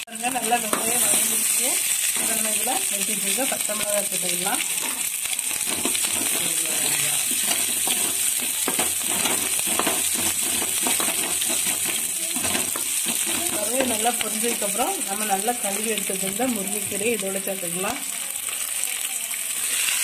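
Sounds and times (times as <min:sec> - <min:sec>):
food sizzling in hot oil: 0:00.0 - 0:20.0
metal spatula scraping a pan: 0:00.4 - 0:03.5, 0:04.6 - 0:14.6, 0:19.5 - 0:20.0.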